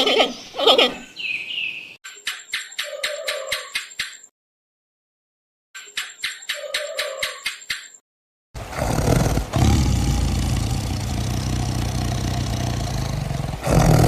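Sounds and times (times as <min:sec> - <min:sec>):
big cat growling: 0:08.6 - 0:14.0.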